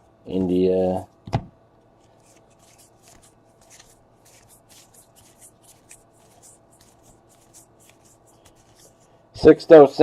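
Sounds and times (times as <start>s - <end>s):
trading cards flipped through: 2.0s - 9.1s.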